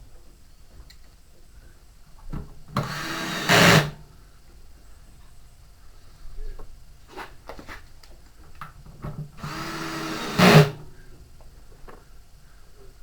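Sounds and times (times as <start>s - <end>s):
power drill running: 2.8s - 4.0s, 9.4s - 10.8s.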